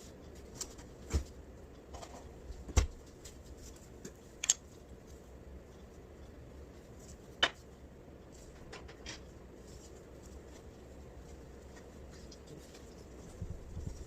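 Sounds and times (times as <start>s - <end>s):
soft rubbing: 9.5s - 14.0s.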